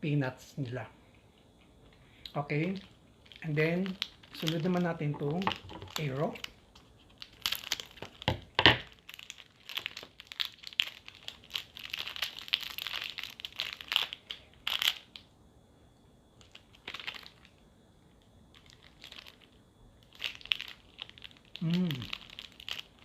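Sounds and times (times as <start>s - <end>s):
wrapper crinkling and tearing: 2.6s - 15.2s, 16.4s - 17.6s, 18.5s - 23.0s.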